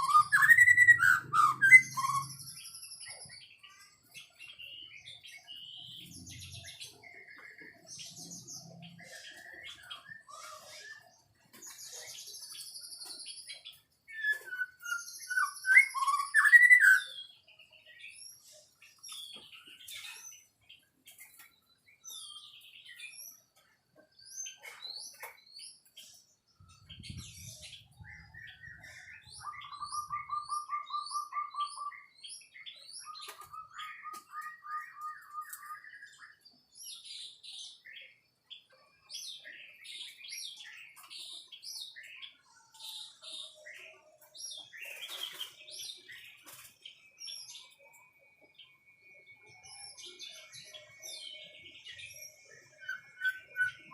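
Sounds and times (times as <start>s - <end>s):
bird singing whistled phrases: 0.0s - 3.2s, 14.1s - 17.4s, 28.2s - 36.4s, 51.9s - 53.9s.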